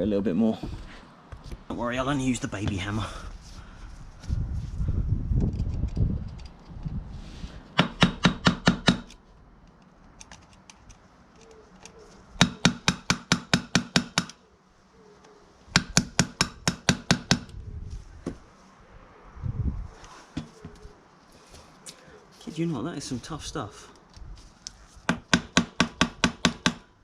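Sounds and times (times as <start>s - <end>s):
hammer tapping metal rivet: 12.4s - 14.4s, 25.1s - 26.8s.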